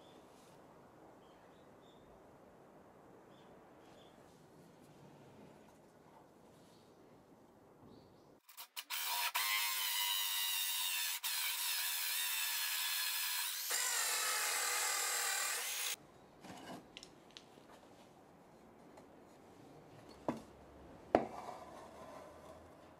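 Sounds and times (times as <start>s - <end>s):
drill hole saw cutting wood: 8.7s - 16.0s.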